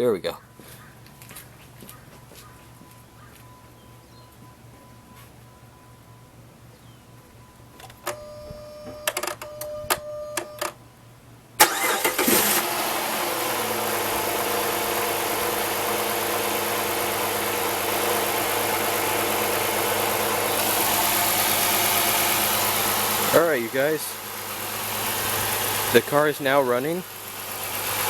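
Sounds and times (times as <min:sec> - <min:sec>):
car engine idling: 0:11.1 - 0:28.0.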